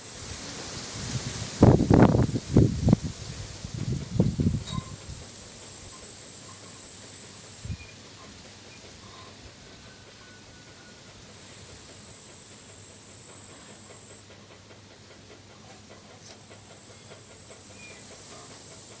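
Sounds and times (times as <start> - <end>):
wind hiss: 0.0 - 19.0
crickets chirring: 4.2 - 9.4, 10.1 - 14.2, 16.4 - 19.0.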